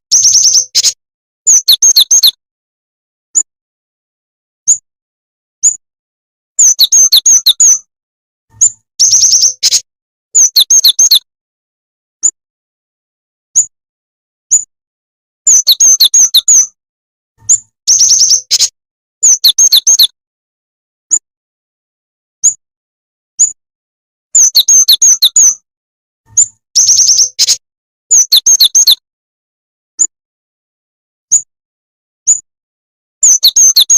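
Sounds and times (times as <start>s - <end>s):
bird sharp high chirps: 0.1s - 2.4s, 4.6s - 4.8s, 5.6s - 5.8s, 6.6s - 7.9s, 8.5s - 11.3s, 13.5s - 13.7s, 14.5s - 14.7s, 15.5s - 16.8s, 17.4s - 20.2s, 22.4s - 22.6s, 23.4s - 23.6s, 24.4s - 25.6s, 26.3s - 29.0s, 31.3s - 31.5s, 32.2s - 32.5s, 33.2s - 33.9s.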